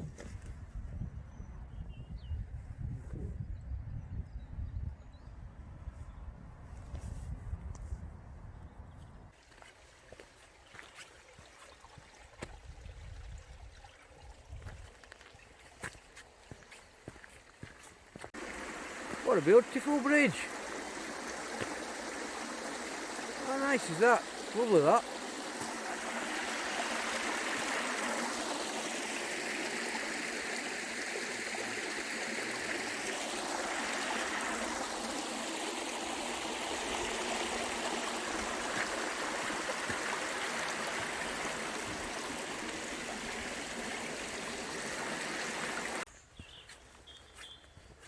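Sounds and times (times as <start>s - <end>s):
stream water flowing: 9.3s - 46.1s.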